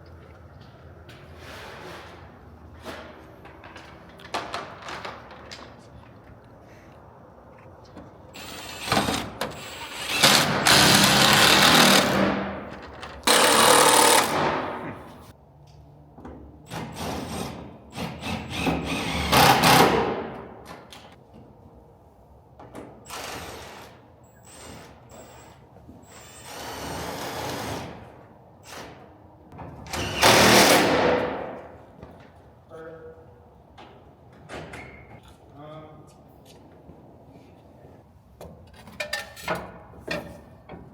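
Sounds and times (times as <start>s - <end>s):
power tool running in bursts: 9.6s - 12.4s, 13.3s - 14.4s.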